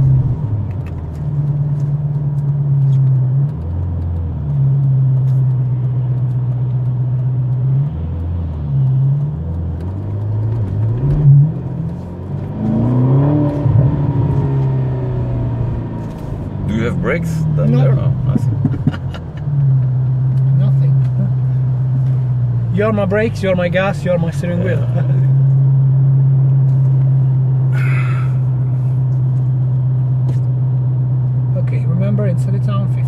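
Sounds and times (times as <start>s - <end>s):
car engine from inside cabin: 0.0s - 33.0s.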